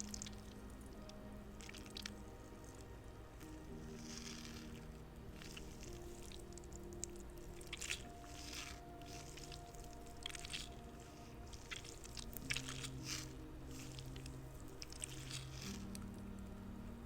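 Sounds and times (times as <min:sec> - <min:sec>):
squishy toy being squeezed: 0:03.4 - 0:16.0.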